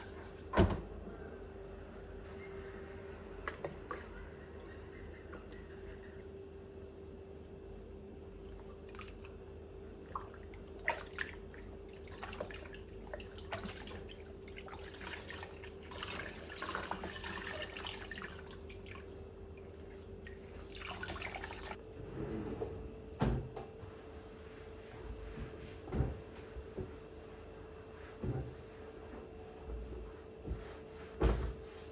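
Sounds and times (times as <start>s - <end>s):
tap water running: 10.2s - 21.8s.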